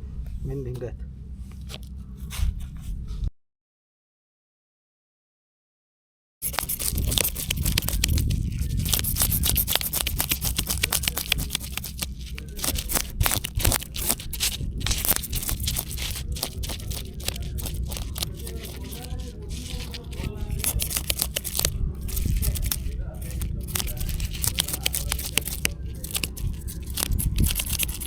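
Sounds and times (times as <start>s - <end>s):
blade scraping fish scales: 6.4s - 28.0s.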